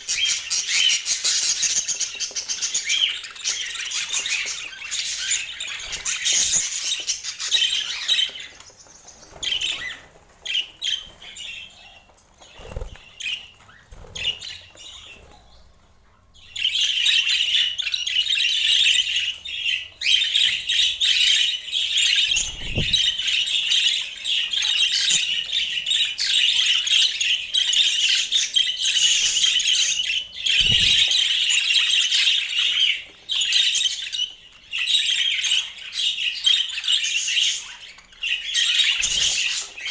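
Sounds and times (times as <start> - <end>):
budgerigars chattering and warbling: 16.5 - 39.9.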